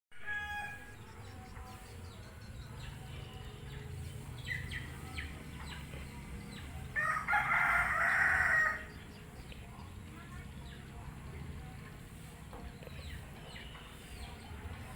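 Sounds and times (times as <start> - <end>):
rooster crowing: 0.2 - 0.9, 7.0 - 8.9
bird chirps: 12.8 - 14.6.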